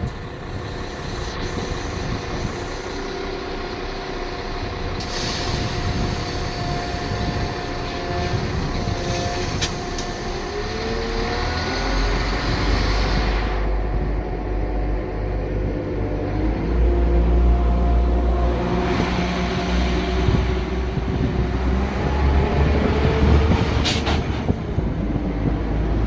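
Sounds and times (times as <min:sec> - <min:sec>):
deep rumble: 0:00.0 - 0:26.0
train engine whining: 0:00.0 - 0:26.0
hiss: 0:05.0 - 0:06.6.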